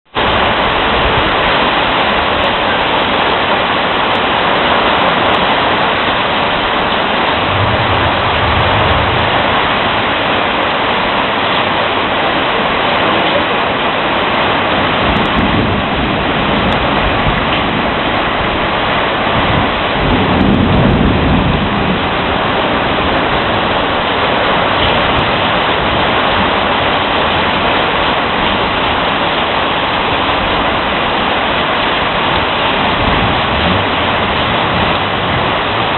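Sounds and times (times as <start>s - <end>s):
heavy rain pouring: 0.0s - 35.9s
low rolls of thunder: 6.5s - 11.1s, 14.6s - 29.2s, 32.0s - 35.9s.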